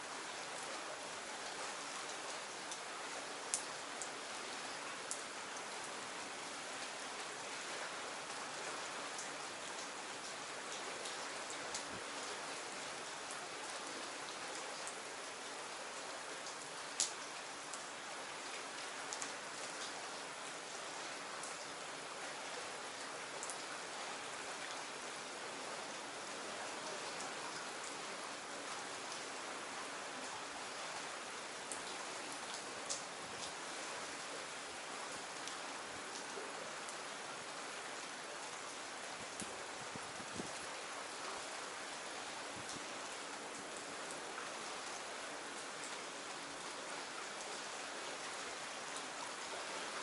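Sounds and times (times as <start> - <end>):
rain falling: 0.0 - 50.0
raindrop ticks: 1.4 - 2.9, 3.5 - 4.2, 5.1 - 5.7, 9.2 - 12.4, 16.4 - 20.0, 31.6 - 33.6, 35.1 - 37.0, 38.4 - 39.6.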